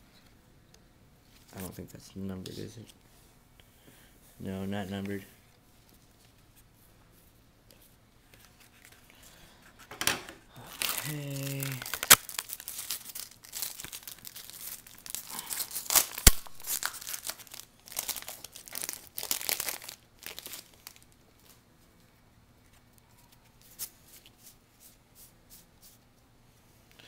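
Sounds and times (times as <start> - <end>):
foil wrapper crinkling: 10.6 - 21.6.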